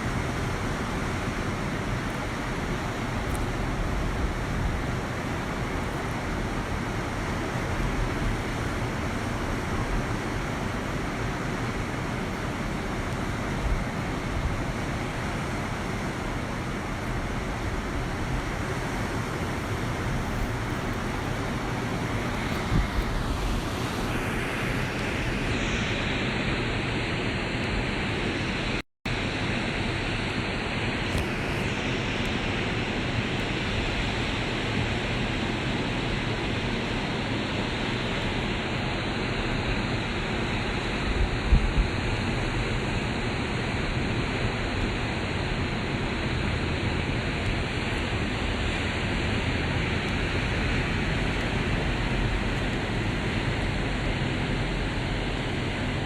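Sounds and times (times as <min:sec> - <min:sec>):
wind buffeting microphone: 0:00.0 - 0:26.8, 0:39.5 - 0:42.4
ocean surf rushing: 0:00.0 - 0:56.0.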